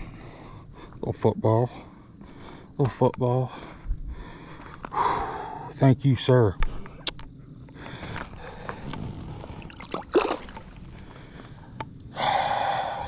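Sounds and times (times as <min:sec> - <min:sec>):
water splashing and sloshing: 0:09.1 - 0:11.0.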